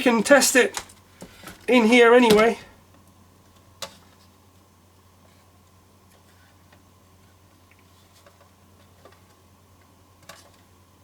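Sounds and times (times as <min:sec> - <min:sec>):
low electrical hum: 0:00.0 - 0:11.0
small parts clicking and knocking: 0:00.7 - 0:01.7.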